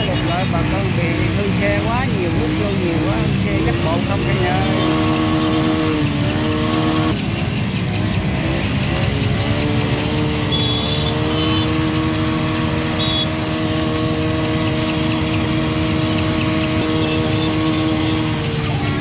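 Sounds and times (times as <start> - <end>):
traffic noise: 0.0 - 19.0
vehicle engine running: 0.0 - 19.0.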